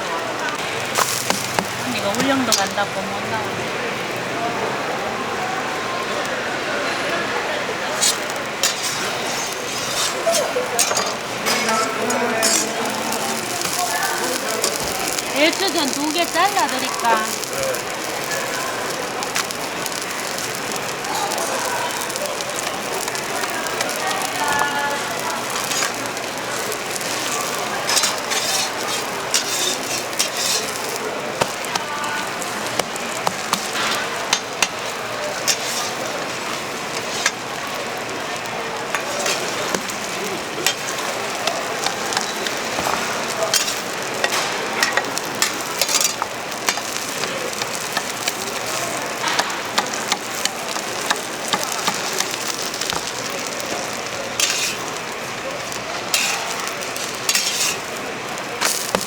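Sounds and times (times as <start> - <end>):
pancakes sizzling on griddle: 0.0 - 59.0
metal spatula scraping griddle: 7.9 - 17.8, 23.1 - 37.6, 38.9 - 59.0.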